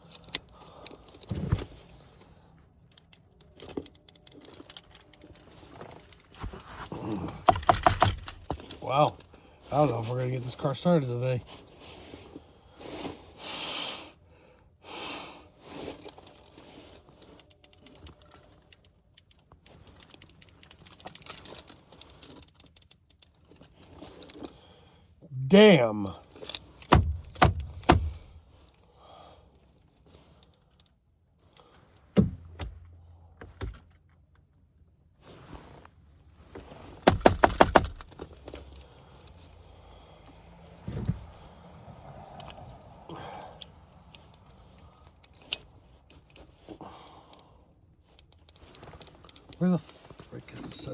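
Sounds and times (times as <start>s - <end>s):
sharp clicks and rattles: 7.4s - 9.3s, 17.2s - 24.5s, 26.4s - 28.4s, 36.9s - 39.5s
dull thump: 26.9s - 28.4s, 32.2s - 33.8s, 40.9s - 41.4s.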